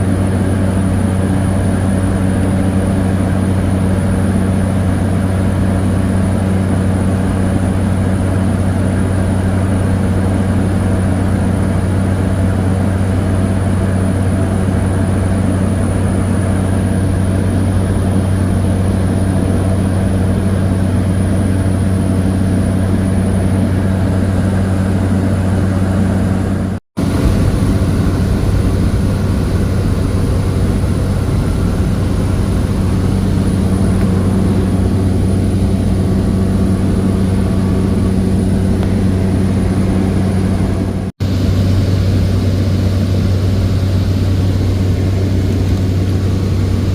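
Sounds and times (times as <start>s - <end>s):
turboprop engine droning: 0.0s - 46.9s.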